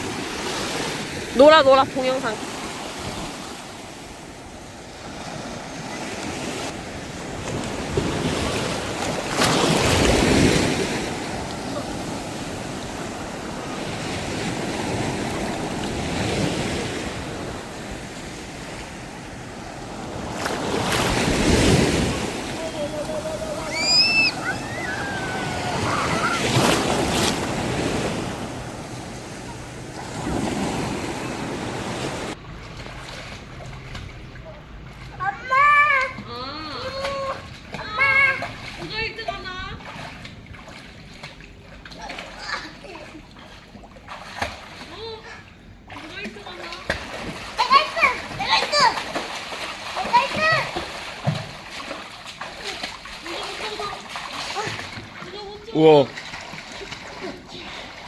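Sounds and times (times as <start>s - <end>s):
sea waves washing onto beach: 0.0s - 36.4s, 46.0s - 58.0s.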